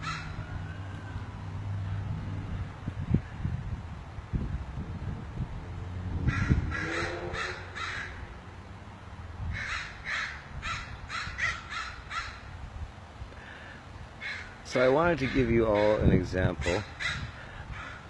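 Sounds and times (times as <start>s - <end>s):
crows cawing: 0.0s - 1.2s, 6.2s - 8.4s, 9.5s - 12.5s, 13.4s - 14.6s, 15.2s - 18.0s
low wind rumble on microphone: 0.0s - 18.0s.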